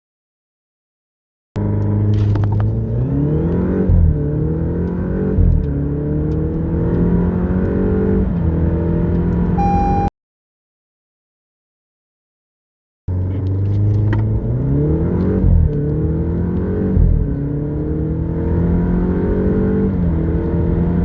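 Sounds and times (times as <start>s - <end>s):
car engine accelerating hard: 1.6s - 10.1s, 13.1s - 21.0s
short beep: 9.6s - 10.1s.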